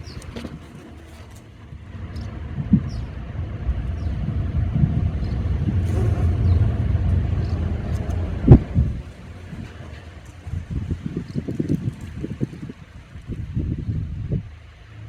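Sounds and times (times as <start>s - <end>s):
car passing rumble: 1.0s - 15.0s
sharp thump: 3.8s - 9.2s.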